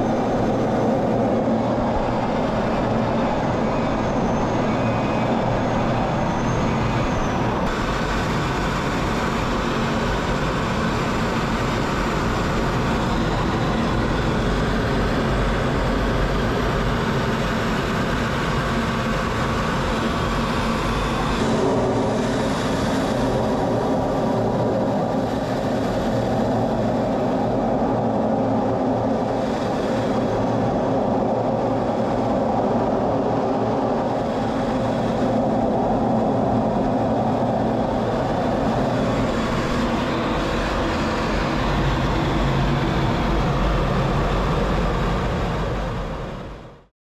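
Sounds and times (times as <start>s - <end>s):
jet engines roaring: 0.0s - 46.6s.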